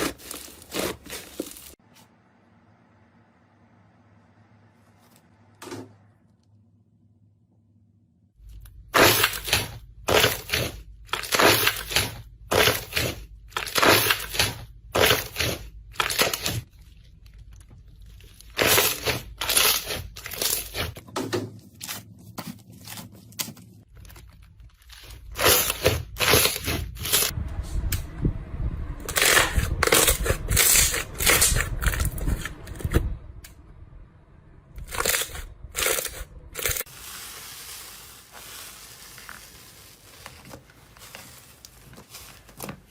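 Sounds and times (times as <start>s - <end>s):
crunchy material being crushed: 0.0s - 1.8s, 8.7s - 21.0s, 22.8s - 27.3s, 34.8s - 42.9s.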